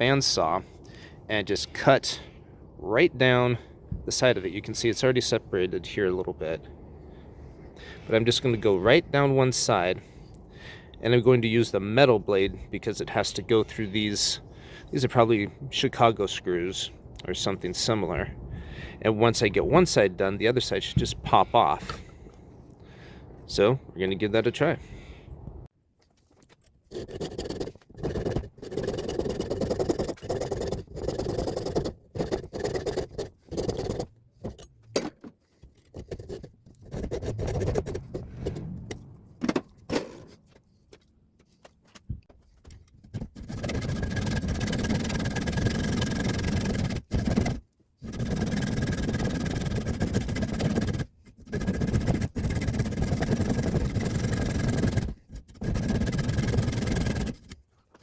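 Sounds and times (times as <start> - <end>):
bandsaw cutting wood and metal: 43.2 - 57.6.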